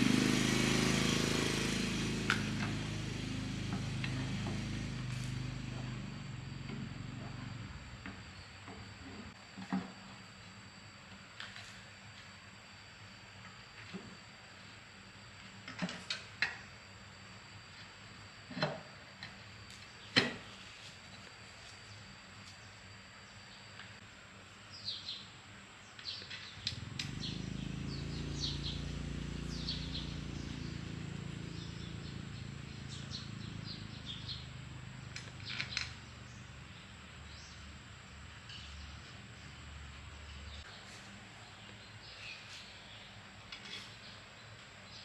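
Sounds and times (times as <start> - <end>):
low engine hum: 0.0 - 9.4, 26.6 - 40.7
small birds chirping: 25.9 - 37.8.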